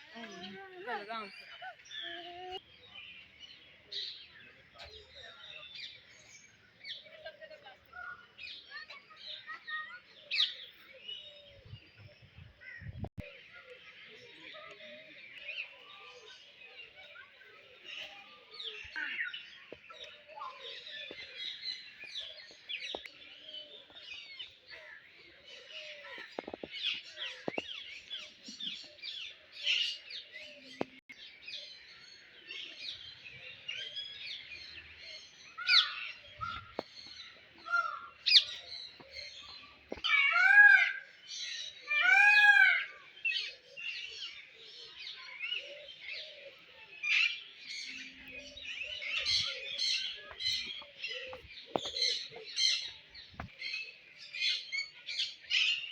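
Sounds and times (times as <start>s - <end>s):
birds chirping and twittering: 0.0s - 55.9s
drawn-out bird calls: 47.8s - 54.6s.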